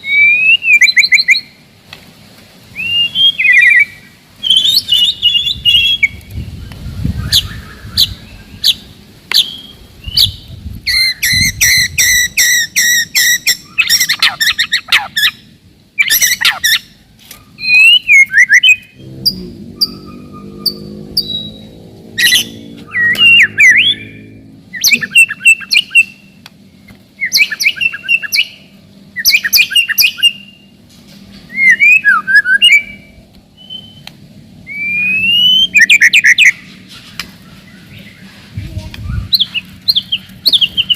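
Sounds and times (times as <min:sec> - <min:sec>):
bird singing: 0:02.8 - 0:30.8, 0:31.4 - 0:40.9
low steady hum: 0:16.7 - 0:40.9.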